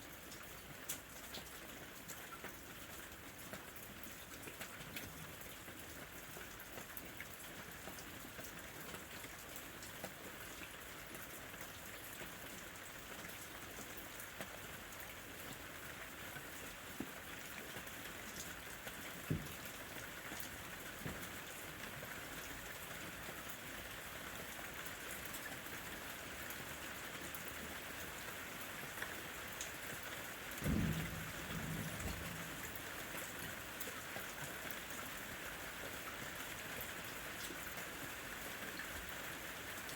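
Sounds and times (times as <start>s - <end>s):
rain falling on tree leaves: 0.0s - 39.9s
distant thunder rumble: 30.6s - 32.8s.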